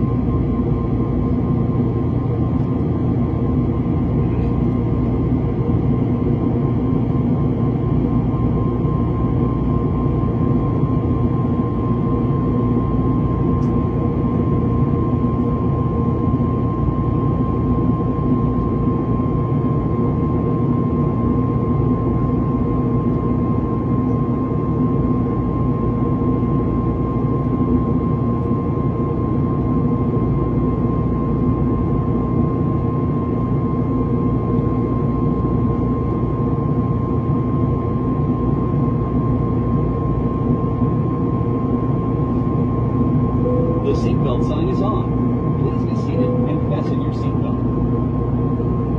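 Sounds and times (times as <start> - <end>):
airliner cabin engine drone: 0.0 - 48.9.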